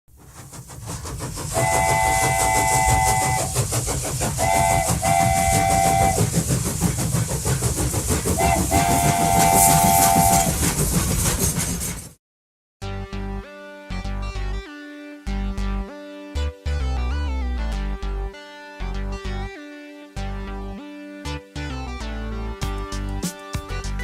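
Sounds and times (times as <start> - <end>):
steam locomotive chuffing: 0.1 - 12.2
locomotive whistle blasts: 1.5 - 3.6, 4.4 - 6.3, 8.4 - 10.6.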